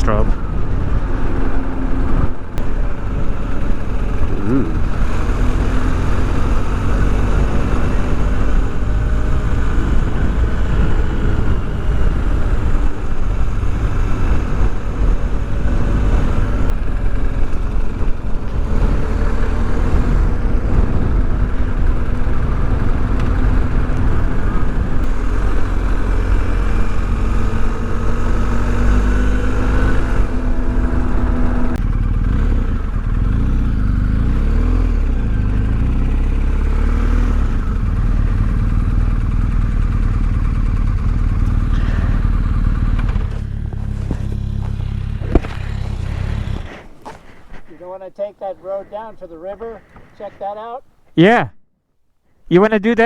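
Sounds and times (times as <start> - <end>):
wind rumble on microphone: 0.0 - 33.0
motorcycle engine running: 0.0 - 47.8.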